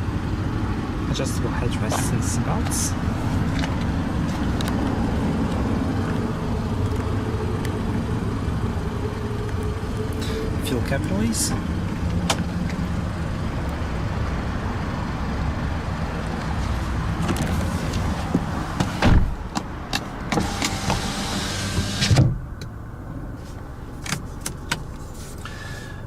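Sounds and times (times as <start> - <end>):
car engine idling: 0.0 - 26.0
clicks and knocks in car interior: 12.1 - 12.8, 17.2 - 21.0, 24.0 - 25.2
car door thump: 12.2 - 12.5, 18.3 - 19.7, 21.8 - 22.4.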